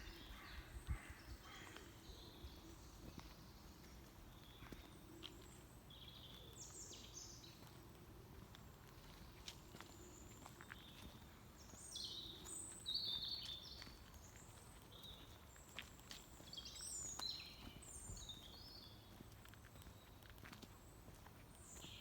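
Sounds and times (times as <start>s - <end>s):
songbird singing: 0.0s - 22.0s
light footsteps: 1.6s - 6.4s, 7.4s - 22.0s.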